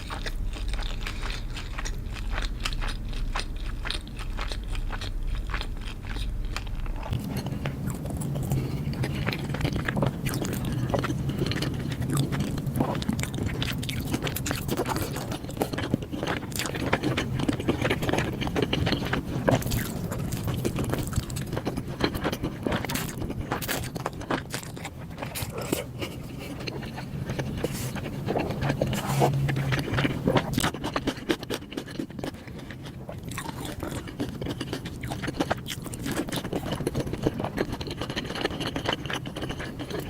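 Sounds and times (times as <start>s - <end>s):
chewing and crunching food: 0.0s - 40.0s.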